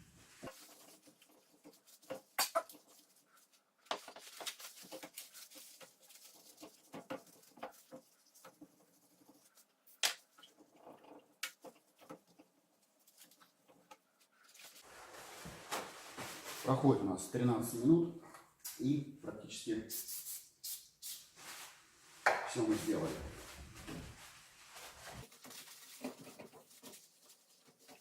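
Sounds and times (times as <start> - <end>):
paper towels rubbing on glass: 22.8 - 28.0.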